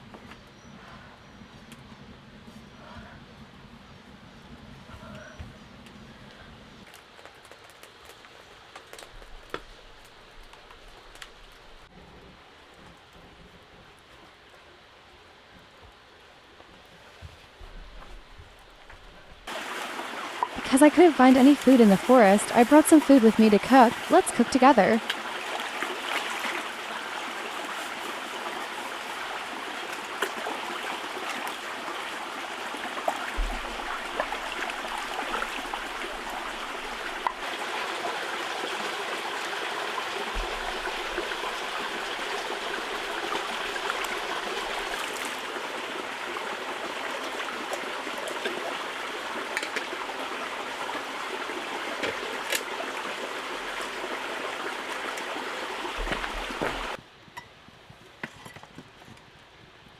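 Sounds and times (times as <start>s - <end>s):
trickling water: 18.1s - 57.0s.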